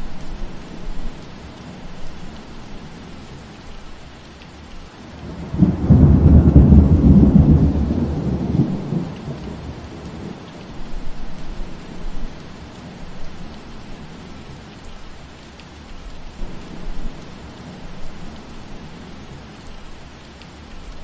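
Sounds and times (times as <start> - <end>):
rain hiss: 0.0 - 21.0
thunder rumble: 5.2 - 12.4.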